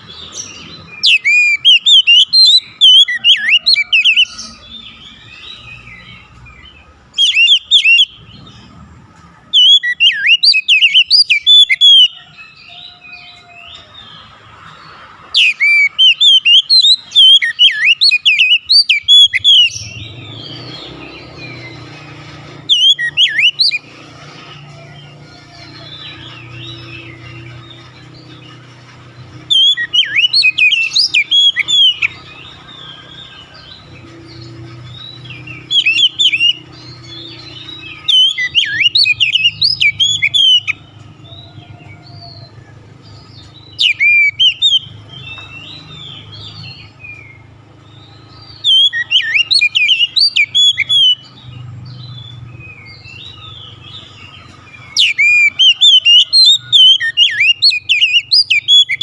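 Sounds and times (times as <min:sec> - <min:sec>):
bird singing whistled phrases: 0:00.9 - 0:06.2, 0:07.1 - 0:08.2, 0:09.5 - 0:12.4, 0:15.4 - 0:21.7, 0:22.5 - 0:23.8, 0:29.4 - 0:33.6, 0:34.4 - 0:40.8, 0:43.7 - 0:47.4, 0:48.2 - 0:51.3, 0:54.8 - 0:59.0.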